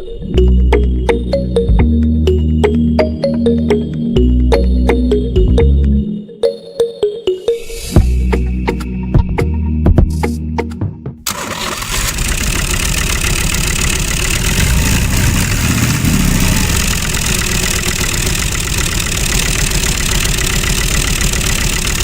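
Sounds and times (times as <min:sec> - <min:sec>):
small motor chattering: 0:11.3 - 0:22.0.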